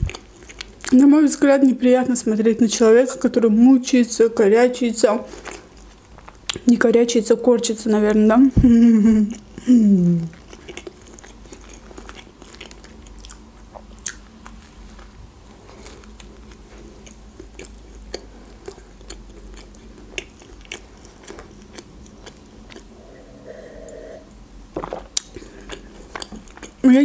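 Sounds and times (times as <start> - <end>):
chewing with bite crunches: 0.0 - 1.1, 10.3 - 23.0, 24.8 - 26.8.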